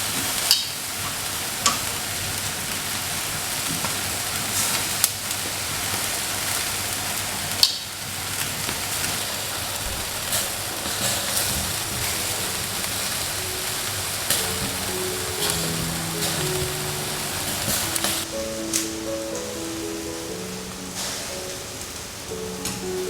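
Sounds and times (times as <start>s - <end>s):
food sizzling in a frying pan: 0.0s - 23.0s
faint music: 9.7s - 23.0s.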